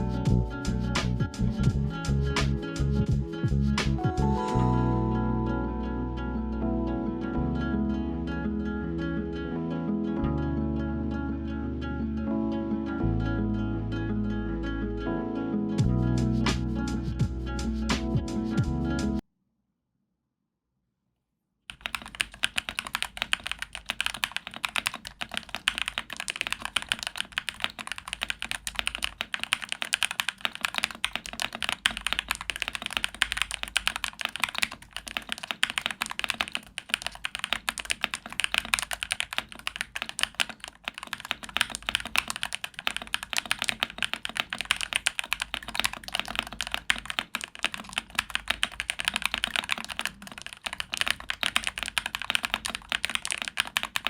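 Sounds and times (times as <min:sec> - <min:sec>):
fast typing on mechanical keyboard: 0:21.7 - 0:54.0.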